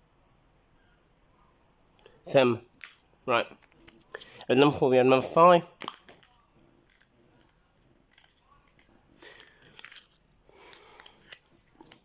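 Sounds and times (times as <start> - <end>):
hands handling plastic toy: 5.7 - 12.0.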